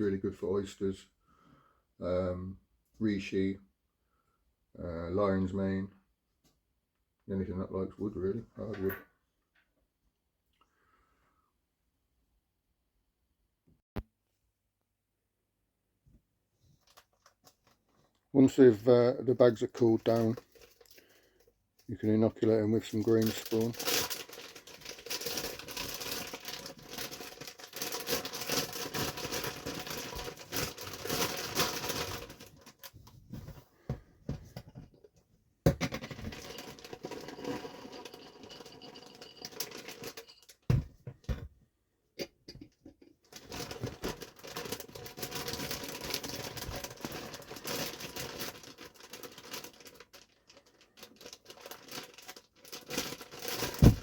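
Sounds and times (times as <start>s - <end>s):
plastic bags crinkling: 18.8s - 21.4s, 22.4s - 33.1s, 36.2s - 40.7s, 43.2s - 54.0s.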